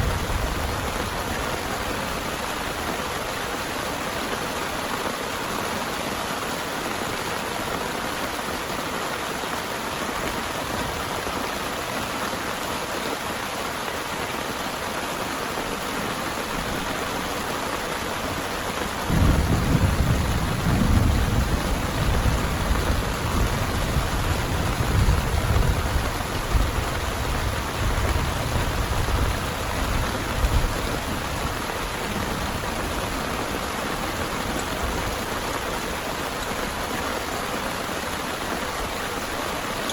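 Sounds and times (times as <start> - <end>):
heavy rain falling: 0.0 - 39.9
thunder rumbling: 19.0 - 36.0.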